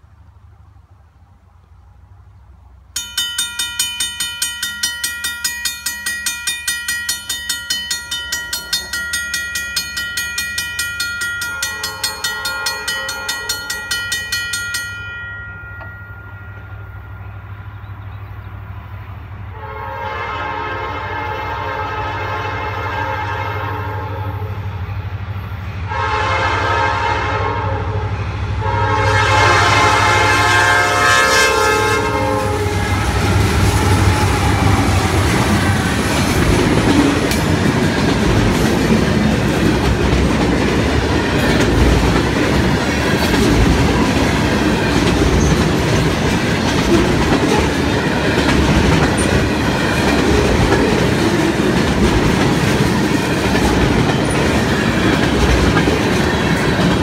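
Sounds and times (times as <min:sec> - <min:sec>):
train horn blasts: 0:11.4 - 0:13.9, 0:19.5 - 0:24.9, 0:25.8 - 0:35.7
freight cars rumbling past: 0:27.7 - 0:57.0.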